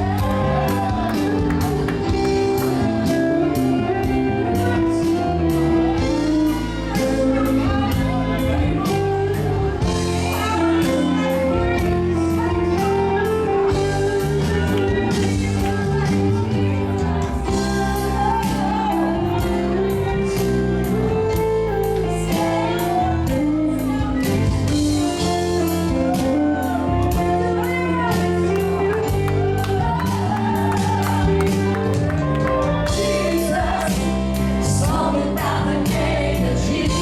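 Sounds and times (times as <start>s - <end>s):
guitar: 0.0s - 37.0s
person singing: 0.0s - 37.0s
worship band music: 0.0s - 37.0s.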